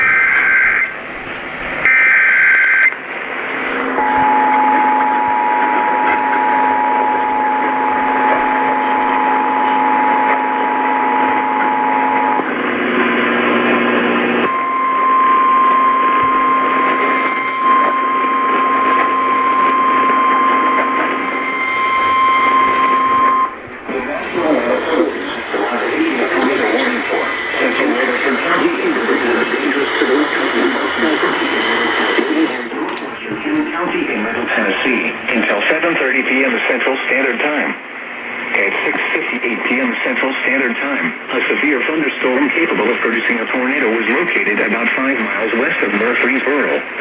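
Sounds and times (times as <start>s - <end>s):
radio static: 0.0s - 47.0s
single warning tone: 3.7s - 12.5s, 14.5s - 28.7s
digital header tones: 3.8s - 12.5s, 14.5s - 29.6s
two-tone attention signal: 3.9s - 12.4s, 14.5s - 26.9s.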